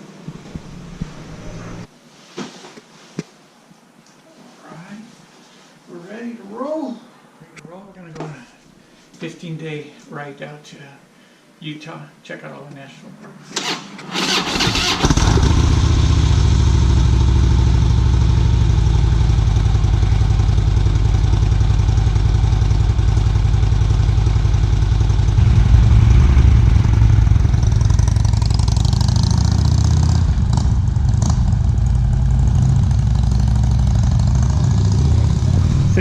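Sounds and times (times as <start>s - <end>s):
motorcycle engine idling: 15.2s - 36.0s.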